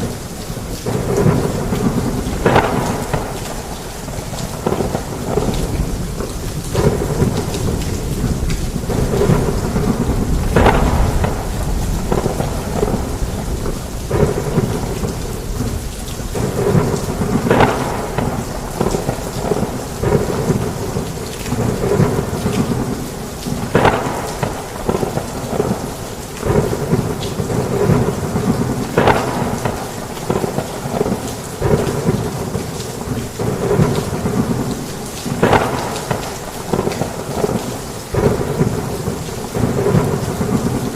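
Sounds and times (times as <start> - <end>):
heavy rain on a roof: 0.0 - 40.9
low thunder rumbling: 0.0 - 40.9.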